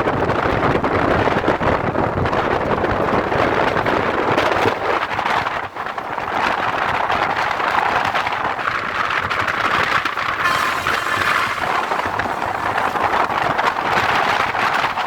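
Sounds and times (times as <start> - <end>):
train wheels on rails: 0.7 - 15.0
wind rushing: 10.2 - 15.0
loud hiss: 10.4 - 14.6.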